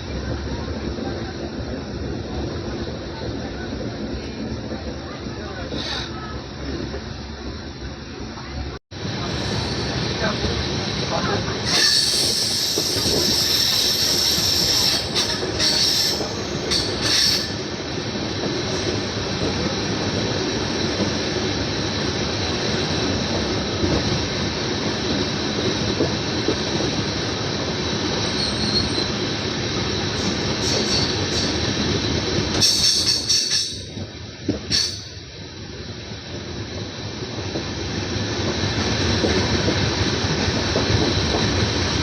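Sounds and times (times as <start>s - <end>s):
train wheels rumbling and rattling: 0.0s - 42.0s
wheels squealing: 28.2s - 29.3s.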